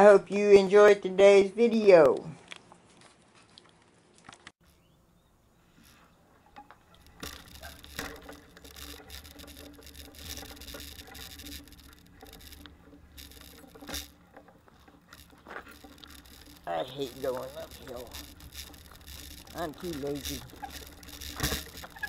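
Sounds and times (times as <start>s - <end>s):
bicycle riding rumble: 4.6s - 22.0s
bicycle rattles and clicks: 5.7s - 22.0s.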